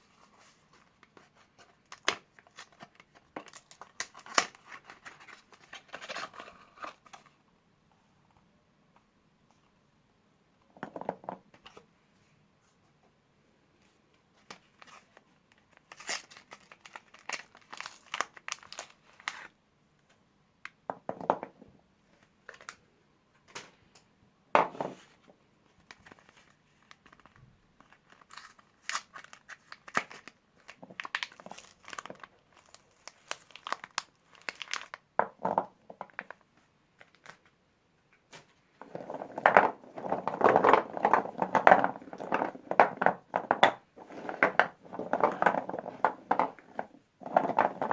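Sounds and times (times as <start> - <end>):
wrappers crinkling and tearing: 15.8 - 19.5, 25.9 - 35.0.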